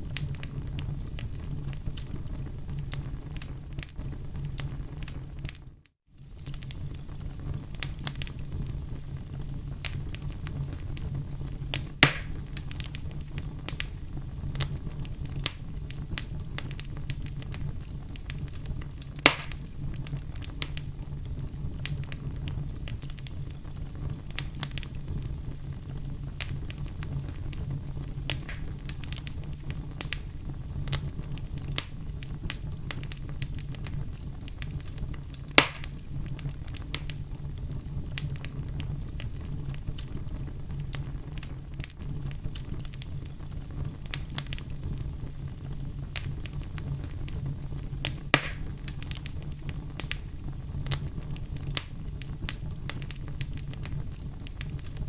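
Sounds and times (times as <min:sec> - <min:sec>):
fire crackling: 0:00.0 - 0:55.0
loud fire pops: 0:00.0 - 0:55.0
low fire rumble: 0:00.0 - 0:55.0.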